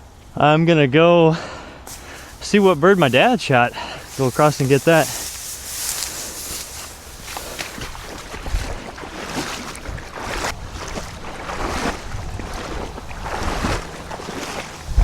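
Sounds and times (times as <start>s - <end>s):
crunching footsteps: 1.9s - 15.0s
wind buffeting microphone: 1.9s - 15.0s.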